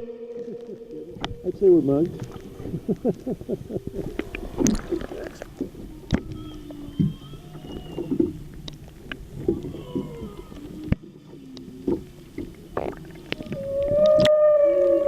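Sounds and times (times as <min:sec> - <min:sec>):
humpback whale song: 0:00.0 - 0:15.0
whale clicks and knocks: 0:04.0 - 0:15.0.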